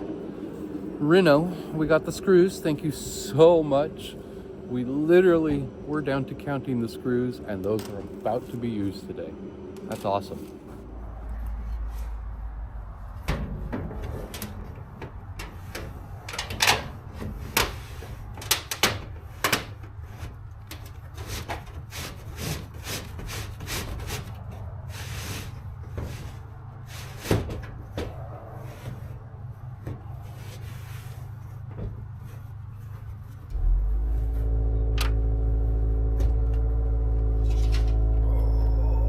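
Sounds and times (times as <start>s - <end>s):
steady low rumble: 0.0s - 18.4s, 31.1s - 39.0s
knocks and thumps of building work: 13.1s - 33.8s.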